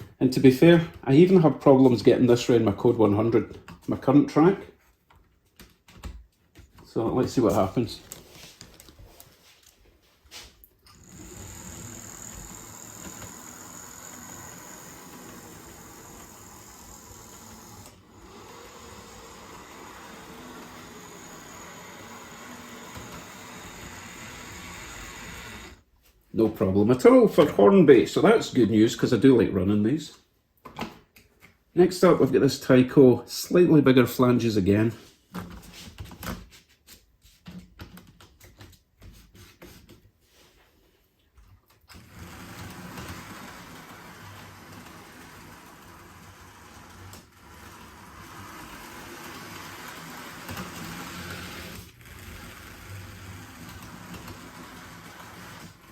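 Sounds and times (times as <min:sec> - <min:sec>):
model train motor whirring: 0:10.9 - 0:25.8, 0:42.0 - 0:55.9.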